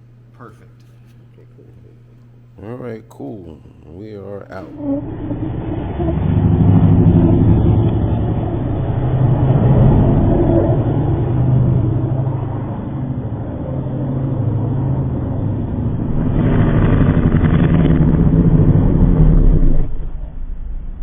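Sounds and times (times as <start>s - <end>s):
car engine accelerating: 5.1s - 21.0s.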